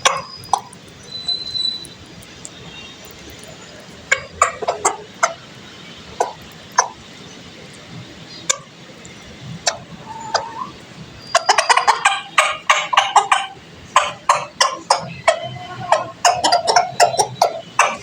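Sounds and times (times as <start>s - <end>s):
fowl calling: 4.1s - 5.5s, 9.6s - 18.0s.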